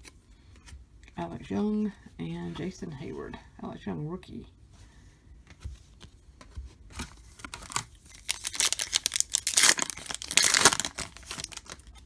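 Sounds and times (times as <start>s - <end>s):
foil wrapper tearing and crinkling: 7.4s - 12.0s.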